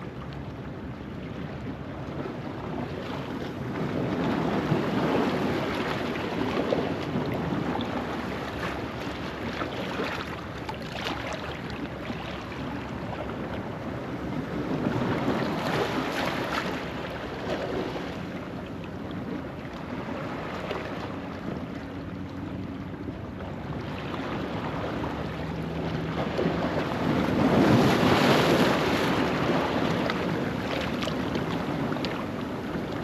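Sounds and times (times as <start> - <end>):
wind buffeting microphone: 19.2 - 33.0
waves washing over rocks: 23.8 - 33.0.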